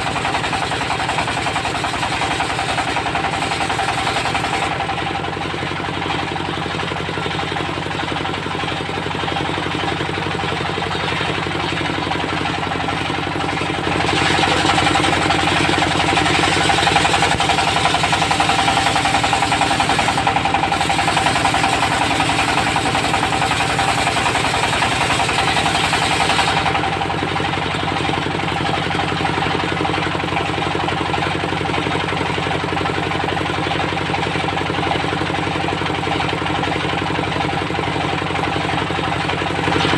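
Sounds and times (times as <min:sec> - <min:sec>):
saw blade cutting wood: 0:00.0 - 0:05.2, 0:13.6 - 0:27.0
sawmill engine running: 0:00.0 - 0:39.9.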